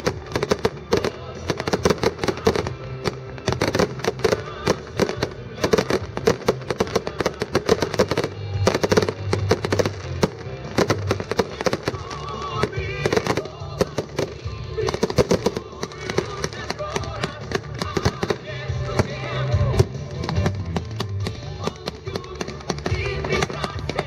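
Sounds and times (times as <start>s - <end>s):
fireworks bangs and crackles: 0.0s - 24.0s
music playing: 0.0s - 24.0s.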